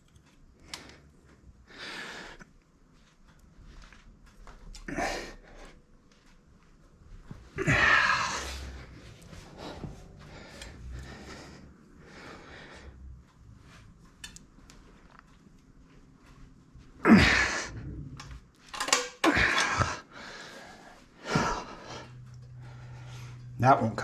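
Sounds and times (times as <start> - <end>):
man exhaling and grunting: 4.9 - 5.5, 7.6 - 9.0, 17.0 - 18.2, 19.2 - 20.1.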